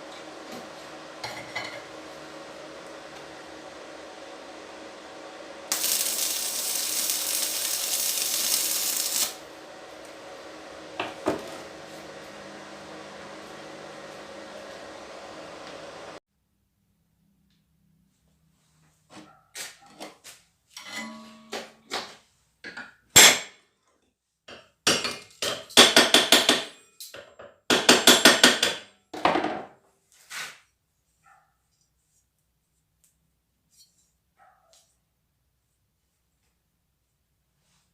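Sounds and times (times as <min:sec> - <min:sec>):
loud hiss: 0:05.7 - 0:09.5.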